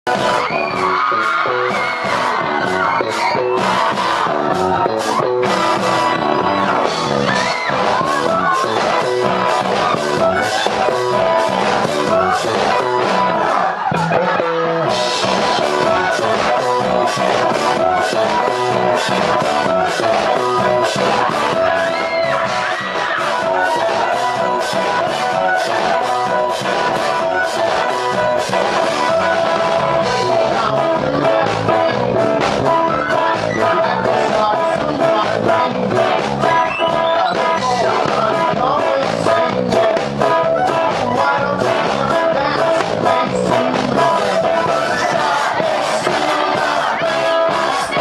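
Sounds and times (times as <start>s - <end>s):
rock band playing live: 0.0s - 48.0s
steady drum beat: 0.1s - 48.0s.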